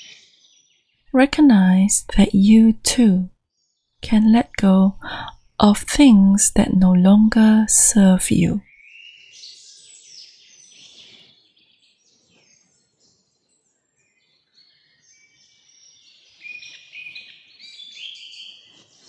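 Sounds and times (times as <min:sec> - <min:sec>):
birds chirping and twittering: 0:08.7 - 0:19.0.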